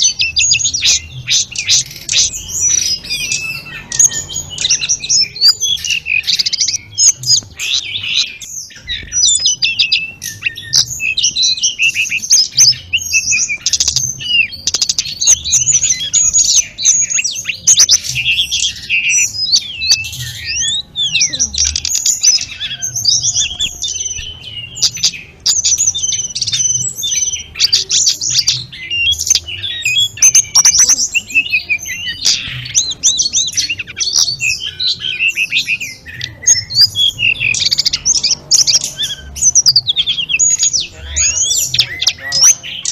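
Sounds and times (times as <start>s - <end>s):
songbird singing: 0.0s - 42.9s.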